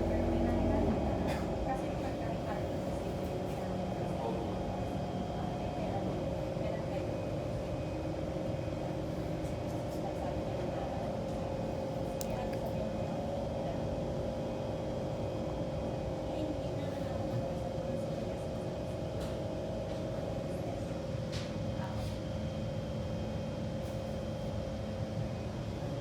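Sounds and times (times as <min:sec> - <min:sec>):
train whine: 0:00.0 - 0:04.8
metro train wheels rumbling on rail: 0:00.0 - 0:12.0.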